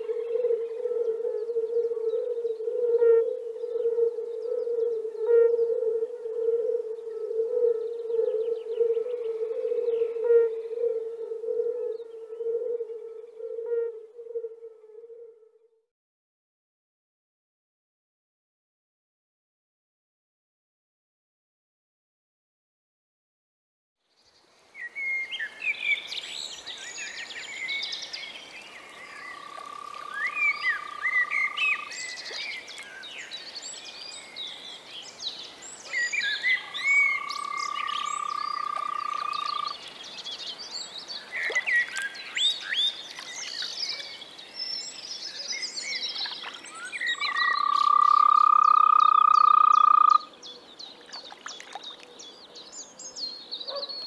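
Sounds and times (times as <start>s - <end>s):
toad calling: 0.0s - 15.4s, 29.2s - 33.0s, 35.9s - 39.8s, 46.2s - 50.3s
birds chirping: 24.8s - 54.0s.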